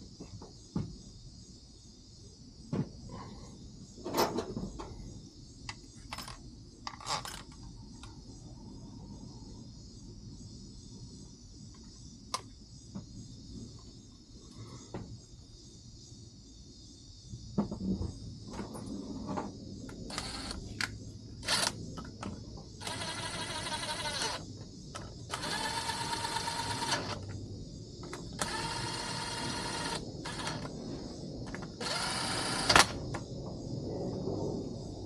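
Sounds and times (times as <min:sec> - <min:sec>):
small motor running: 0:20.1 - 0:20.6, 0:21.4 - 0:21.8, 0:22.8 - 0:24.4, 0:25.3 - 0:27.2, 0:28.4 - 0:30.7, 0:31.8 - 0:33.0.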